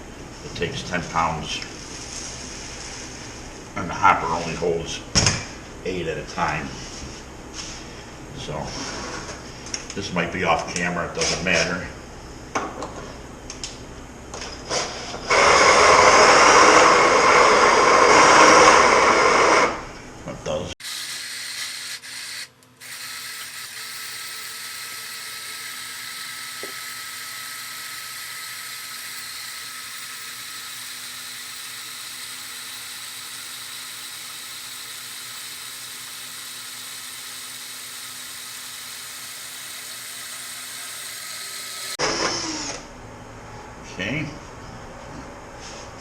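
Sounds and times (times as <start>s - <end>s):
grain mill whining: 14.9s - 19.9s, 20.8s - 42.8s.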